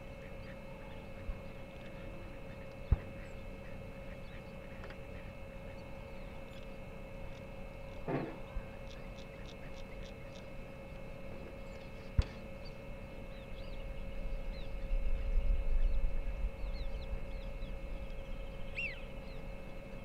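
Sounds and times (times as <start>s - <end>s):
electrical hum: 0.0s - 20.0s
bird calls and whistles: 11.6s - 19.5s
wind rumble on microphone: 13.2s - 20.0s.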